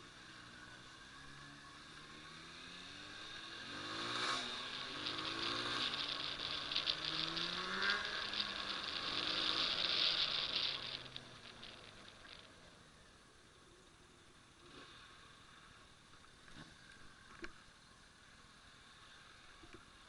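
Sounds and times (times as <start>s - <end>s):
motorcycle engine shifting gears: 2.9s - 12.7s.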